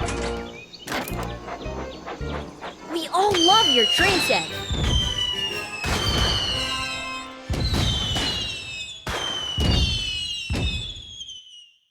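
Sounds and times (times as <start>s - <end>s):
music: 0.0s - 8.6s
fireworks bangs: 2.3s - 11.7s
falling whistle: 3.0s - 11.9s.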